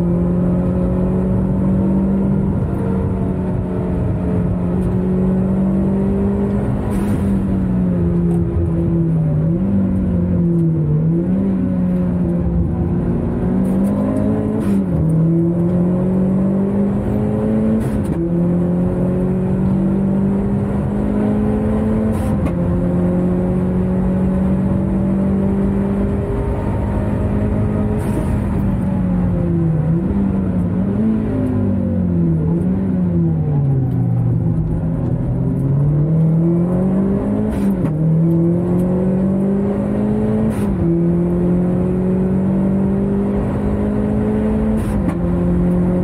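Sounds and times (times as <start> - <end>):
car engine revving from cabin: 0.0 - 46.0.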